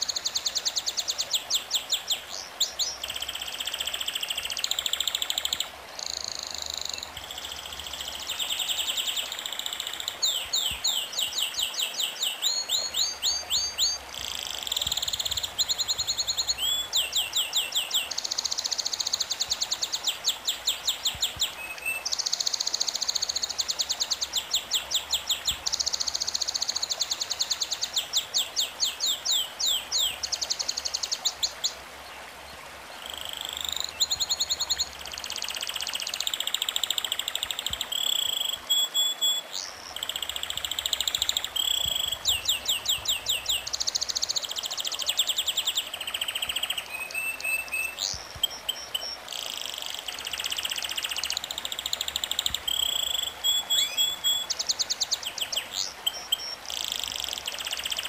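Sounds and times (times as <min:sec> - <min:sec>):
bird chirping: 0:00.0 - 0:31.8, 0:33.0 - 0:58.0
background hiss: 0:00.0 - 0:58.0.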